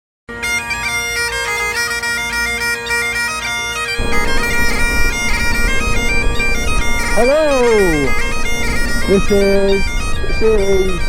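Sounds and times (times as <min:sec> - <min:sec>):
bagpipes playing: 0:00.3 - 0:11.0
low rushing noise: 0:04.0 - 0:11.0.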